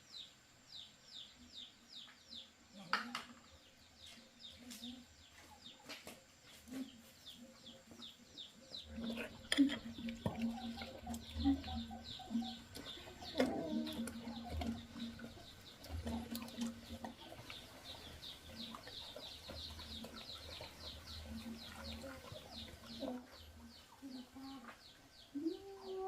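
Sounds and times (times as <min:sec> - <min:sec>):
chickens calling: 0:06.6 - 0:26.0.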